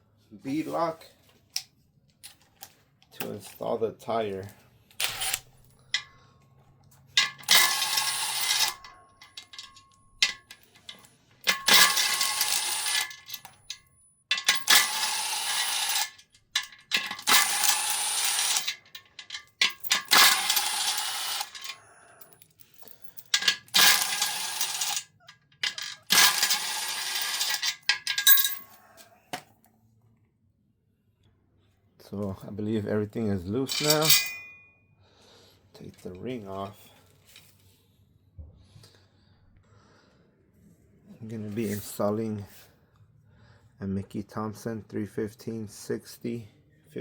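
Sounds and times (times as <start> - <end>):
metallic clicks and clinks: 6.9 - 28.8, 33.7 - 34.6
power tool whining: 11.7 - 13.1.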